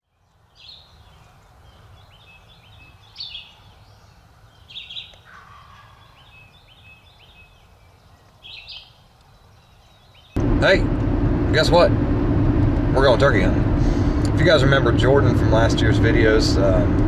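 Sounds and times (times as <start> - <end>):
birds calling: 0.5 - 12.4
turkey gobble: 5.2 - 6.4
low background rumble: 10.4 - 17.0.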